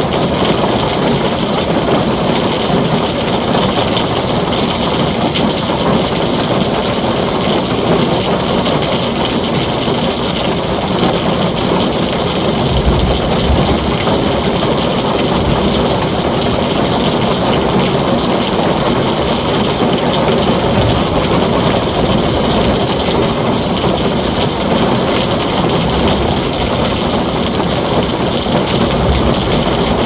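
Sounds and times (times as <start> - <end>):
heavy rain on a tin roof: 0.0 - 30.0
low rumble of thunder: 11.0 - 30.0.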